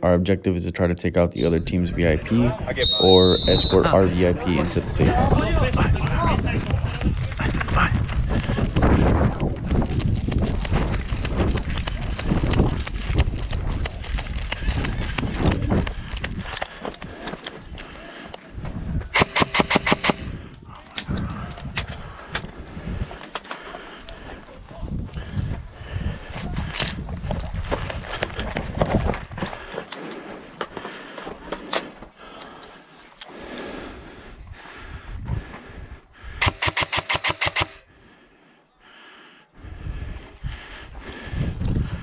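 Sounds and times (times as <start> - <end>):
airsoft gun shots: 19.2 - 20.3, 36.4 - 37.8.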